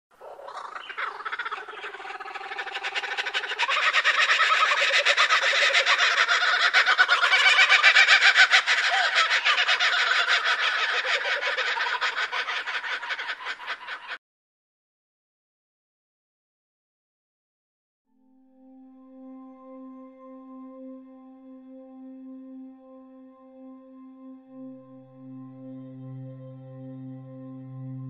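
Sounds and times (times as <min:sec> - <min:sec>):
flock of birds calling: 0:00.2 - 0:14.2.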